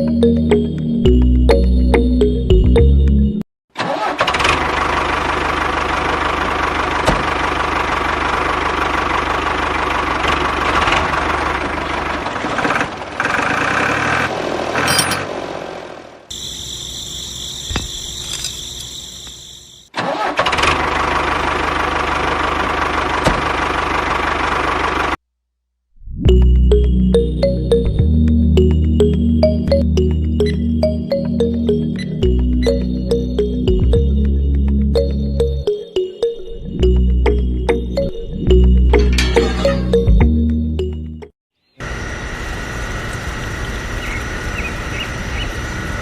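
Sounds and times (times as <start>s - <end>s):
motor high whine: 16.3s - 19.9s, 41.8s - 46.0s.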